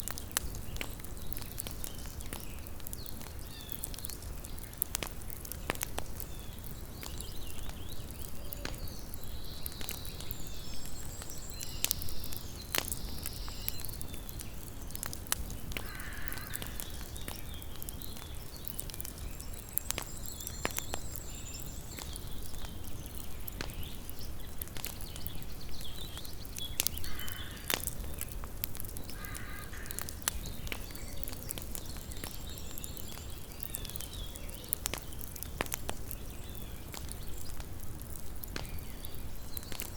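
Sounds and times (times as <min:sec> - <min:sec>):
campfire crackling and popping: 0:00.0 - 0:39.9
bird calling: 0:27.0 - 0:27.8, 0:29.1 - 0:30.3.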